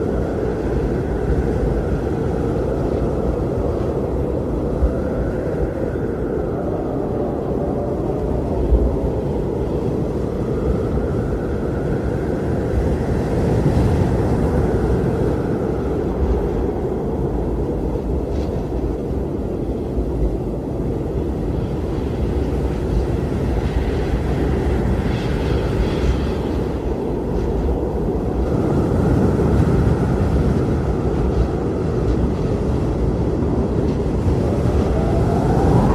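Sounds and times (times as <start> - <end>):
howling blizzard wind: 0.0 - 35.9.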